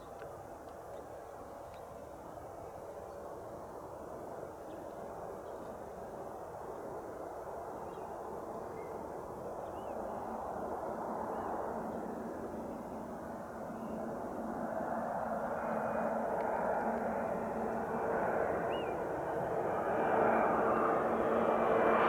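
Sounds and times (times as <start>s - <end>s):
jet engines landing: 10.1s - 22.0s.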